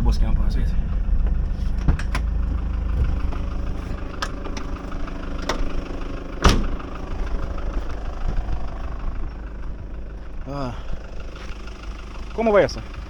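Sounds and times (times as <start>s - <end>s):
vehicle engine idling: 0.0s - 13.0s
sharp knocks: 6.4s - 6.9s.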